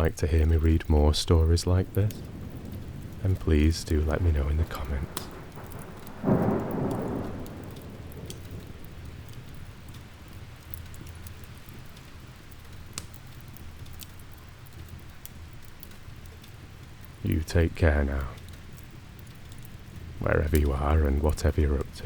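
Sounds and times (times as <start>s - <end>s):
fire crackles: 0.0s - 22.0s
steady rain: 0.0s - 22.0s
low rumble: 1.3s - 10.2s.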